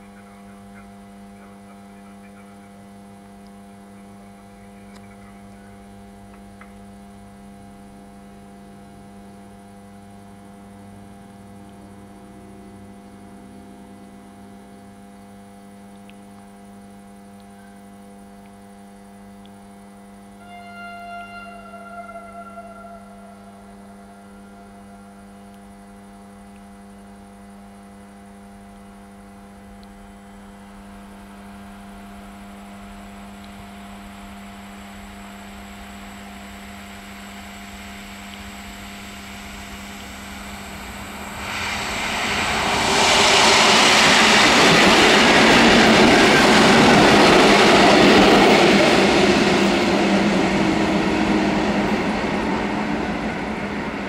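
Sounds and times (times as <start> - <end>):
train passing with wheel noise: 20.4 - 25.3, 34.1 - 54.0.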